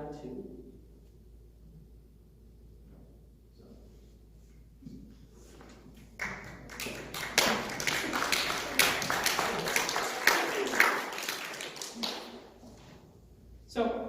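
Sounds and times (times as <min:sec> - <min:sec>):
congregation applauding: 0:06.0 - 0:12.8.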